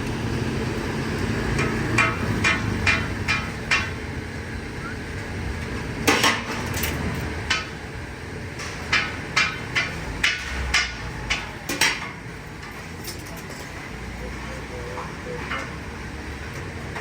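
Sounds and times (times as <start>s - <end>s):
steady background hum: 0.0s - 17.0s
utensils clanking on metal: 1.3s - 4.0s, 6.0s - 7.8s, 8.5s - 17.0s.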